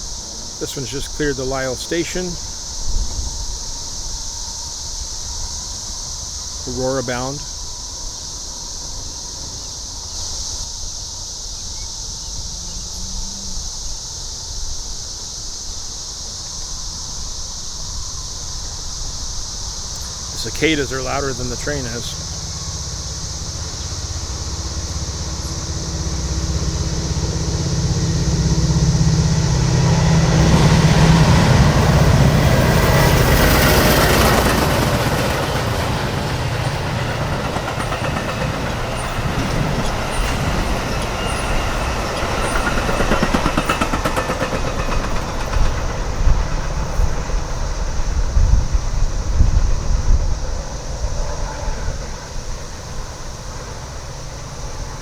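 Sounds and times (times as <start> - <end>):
cicada chorus: 0.0 - 55.0
locomotive drone and rumble: 16.1 - 55.0
train wheels clicking over rail joints: 16.4 - 51.4.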